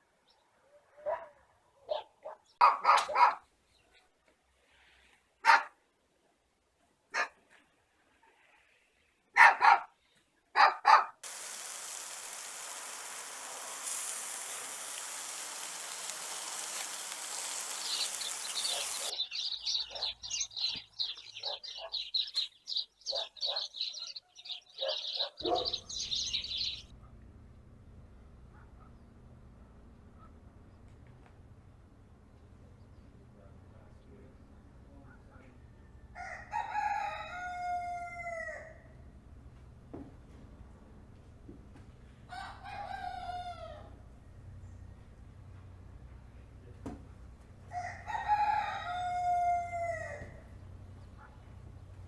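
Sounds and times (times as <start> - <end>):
dog barking: 1.0 - 3.5, 5.4 - 5.8, 7.1 - 7.4, 9.4 - 10.0, 10.6 - 11.2, 19.8 - 20.2, 21.4 - 22.0, 23.1 - 25.9, 28.5 - 29.0, 51.2 - 51.4
steady hiss: 11.2 - 20.4
flock of small birds chirping: 11.2 - 26.9.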